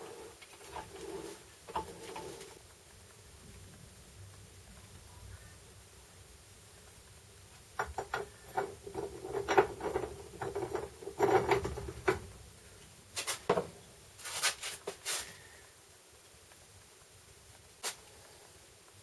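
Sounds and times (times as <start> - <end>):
clicks knocks and clatter: 7.8 - 12.3.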